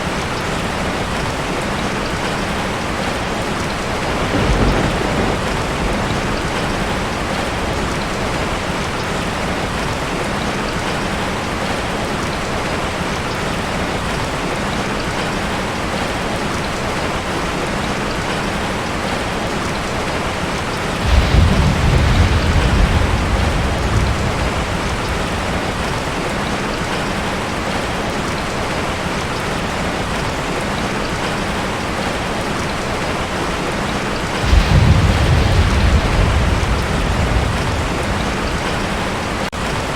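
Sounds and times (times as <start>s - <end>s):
heavy rain on a tin roof: 0.0s - 39.9s
thunder rumbling: 2.9s - 10.1s, 20.1s - 27.9s, 34.2s - 39.9s.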